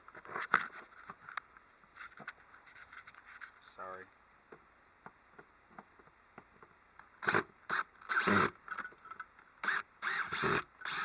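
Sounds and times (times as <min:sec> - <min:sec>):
rustling and scraping of gear: 0:00.0 - 0:03.8.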